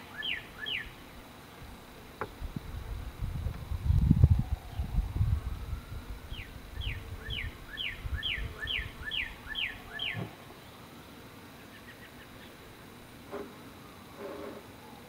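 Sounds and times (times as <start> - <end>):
songbird whistling falling notes: 6.3 - 10.3.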